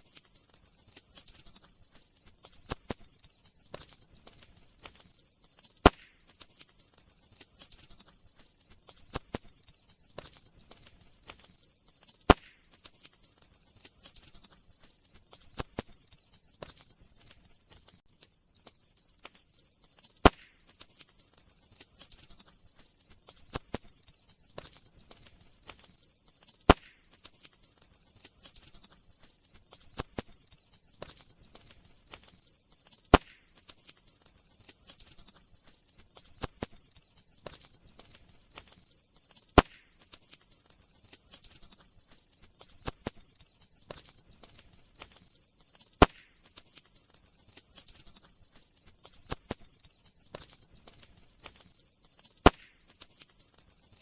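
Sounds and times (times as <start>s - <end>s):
campfire crackling: 0.0s - 54.0s
faint steady hiss: 0.0s - 54.0s
loud fire pop: 5.8s - 6.2s, 12.3s - 12.6s, 20.2s - 20.6s, 26.7s - 27.0s, 33.1s - 33.4s, 39.6s - 39.9s, 46.0s - 46.3s, 52.4s - 52.8s.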